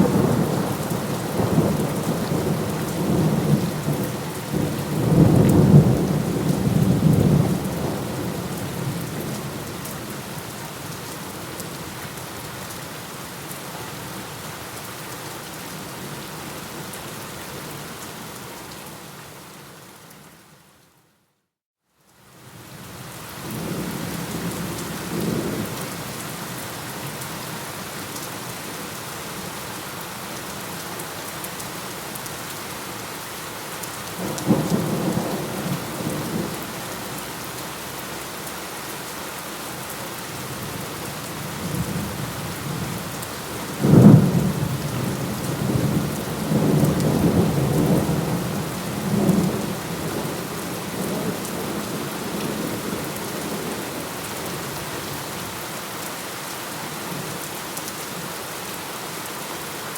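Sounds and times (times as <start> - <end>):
heavy rain: 0.0 - 20.7, 22.1 - 59.9.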